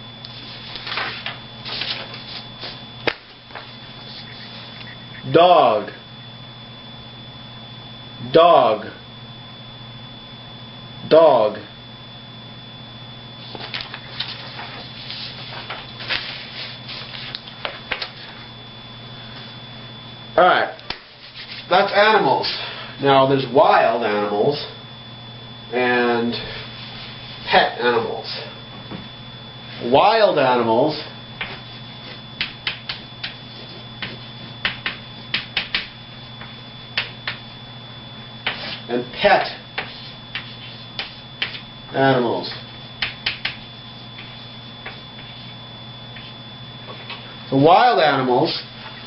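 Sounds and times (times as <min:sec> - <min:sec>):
electrical hum: 0:00.0 - 0:49.0
taps and scratches writing on board: 0:34.0 - 0:35.9, 0:39.8 - 0:41.6.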